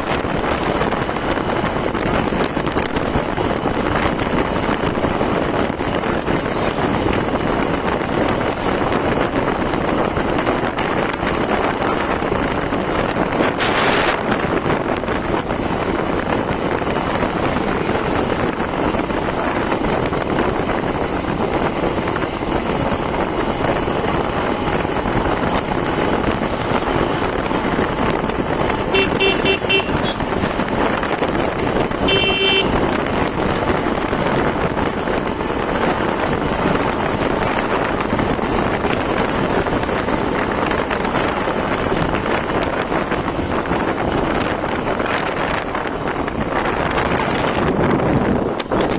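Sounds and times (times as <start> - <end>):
wind and road noise: 0.0 - 48.9
vehicle horn rapid beeps: 28.9 - 30.3, 32.0 - 32.8, 48.7 - 48.9.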